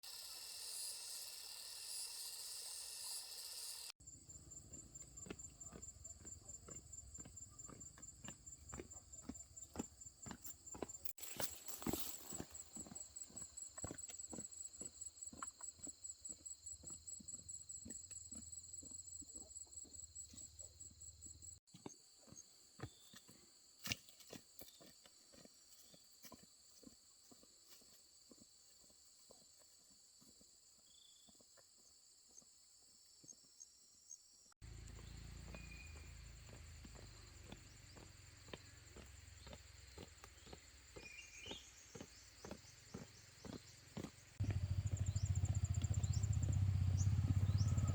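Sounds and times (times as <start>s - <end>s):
high insect whine: 0.0s - 5.3s, 34.7s - 47.9s.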